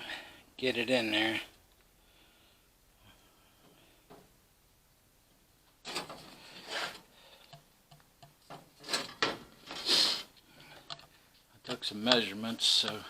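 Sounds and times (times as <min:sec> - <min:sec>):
sheet metal scraping: 0:05.8 - 0:07.0.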